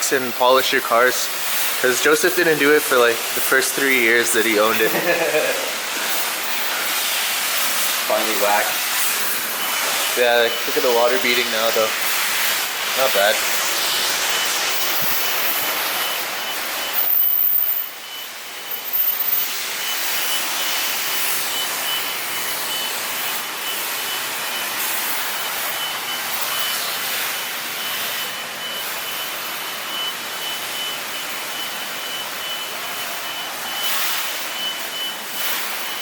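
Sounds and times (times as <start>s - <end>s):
pressure washer spray hiss: 0.0s - 36.0s
short high beeps: 9.6s - 11.9s, 13.0s - 36.0s.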